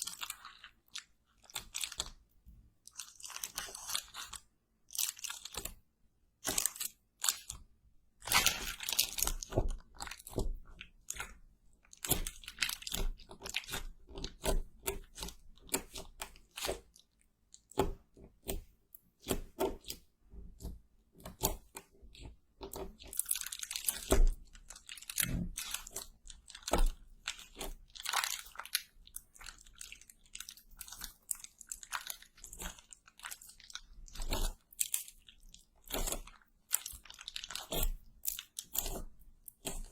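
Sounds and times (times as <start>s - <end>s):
crunching fried food: 2.8s - 5.8s, 8.2s - 15.4s, 22.8s - 39.9s.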